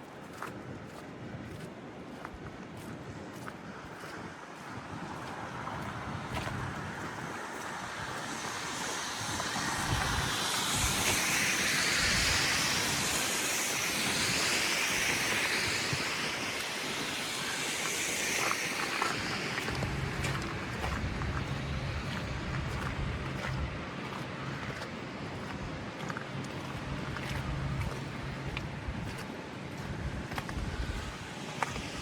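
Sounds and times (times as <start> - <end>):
tyre hiss on snowy street: 3.3 - 32.0.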